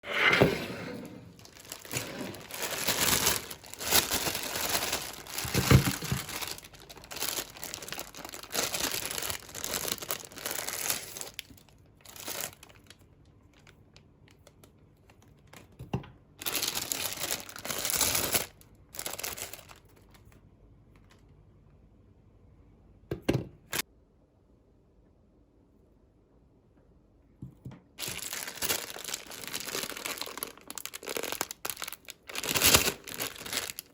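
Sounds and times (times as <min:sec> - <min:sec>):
plastic wrappers crinkling and tearing: 0:01.3 - 0:15.8, 0:16.4 - 0:20.4, 0:28.0 - 0:33.9.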